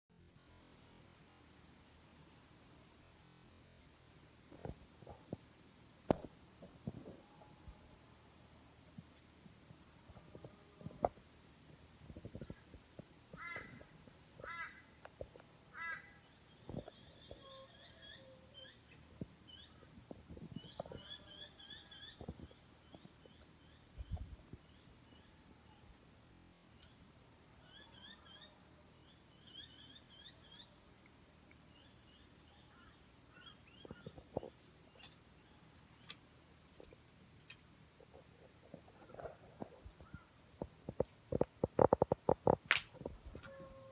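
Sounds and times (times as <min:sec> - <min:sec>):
high insect drone: 0:00.1 - 0:43.9
bird calling: 0:15.7 - 0:19.9, 0:20.6 - 0:23.4, 0:31.8 - 0:36.2, 0:39.9 - 0:40.4
bird chirping: 0:20.5 - 0:25.4, 0:27.6 - 0:30.9, 0:31.7 - 0:36.2
high-pitched insect drone: 0:27.6 - 0:30.8
campfire crackling and popping: 0:40.8 - 0:43.2.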